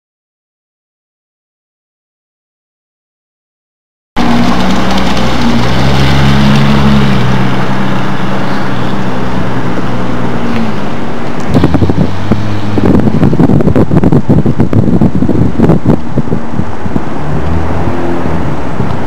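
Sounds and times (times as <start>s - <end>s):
car engine droning: 4.2s - 19.0s
wind buffeting microphone: 4.2s - 19.0s.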